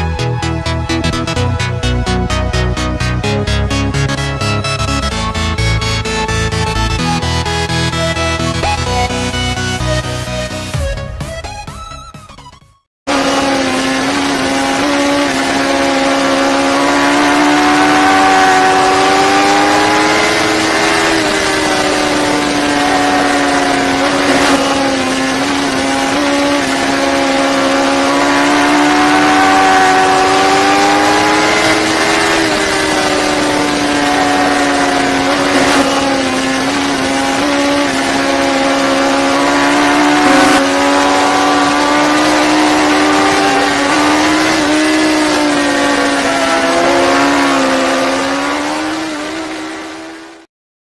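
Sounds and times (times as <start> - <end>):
motorcycle engine at high revs: 13.0 - 50.5.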